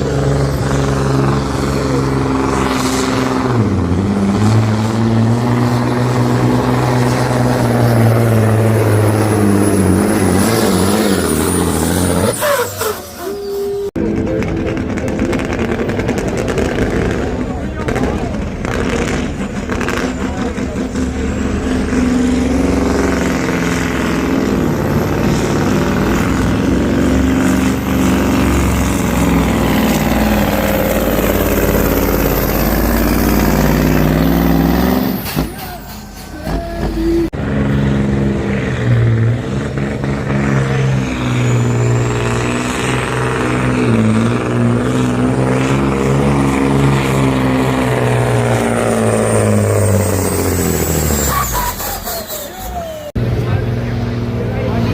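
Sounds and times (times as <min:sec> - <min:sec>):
truck diesel engines running hard: 0:00.0 - 0:54.9
thin high whistle: 0:12.3 - 0:14.0.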